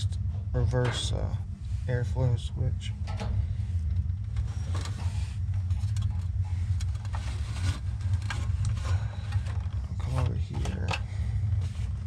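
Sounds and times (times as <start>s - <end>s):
low mechanical drone: 0.0s - 12.0s
clicks and rustles of parts: 3.0s - 12.0s.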